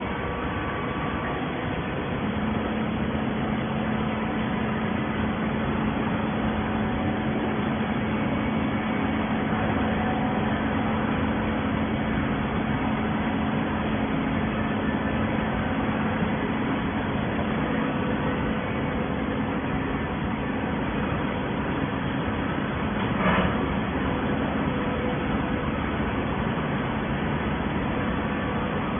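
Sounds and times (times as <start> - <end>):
cardboard baler humming: 0.0 - 28.9.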